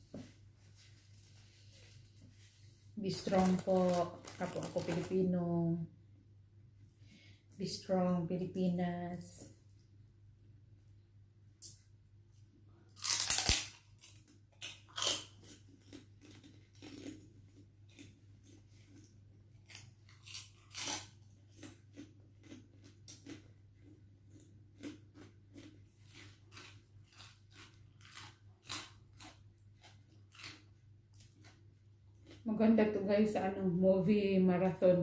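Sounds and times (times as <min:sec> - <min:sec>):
crunching pork rinds: 0:12.9 - 0:32.5.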